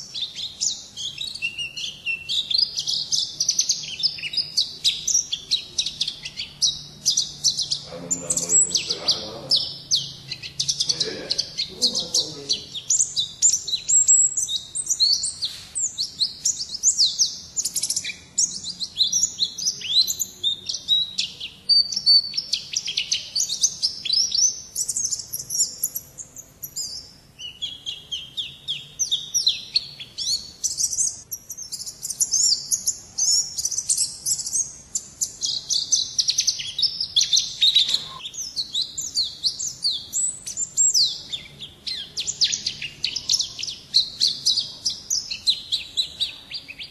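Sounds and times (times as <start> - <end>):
bird twittering: 0.0 - 46.9.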